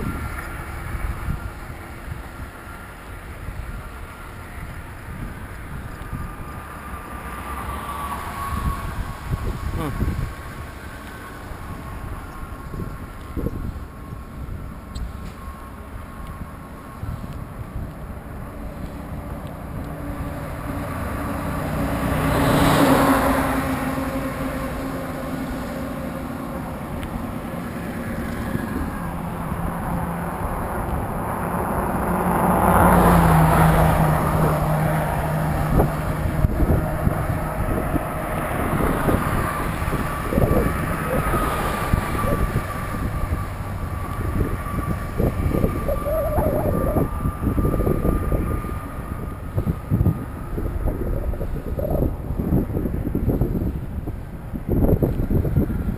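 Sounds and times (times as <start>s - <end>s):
wind buffeting microphone: 0.0s - 7.4s, 8.1s - 55.9s
road noise rushing: 0.0s - 55.9s
vehicles passing: 0.0s - 55.9s.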